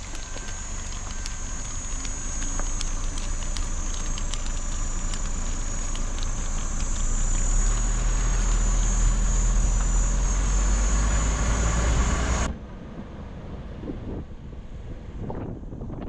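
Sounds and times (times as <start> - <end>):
high-pitched buzz: 0.0 - 12.5
low engine hum: 0.0 - 16.0
wind on microphone: 13.8 - 16.0.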